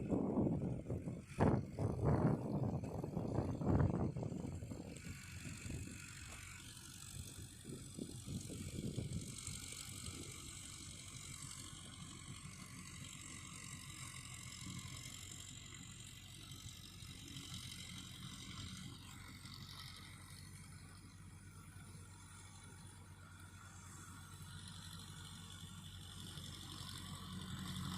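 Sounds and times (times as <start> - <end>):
tractor engine running: 0.0 - 27.9.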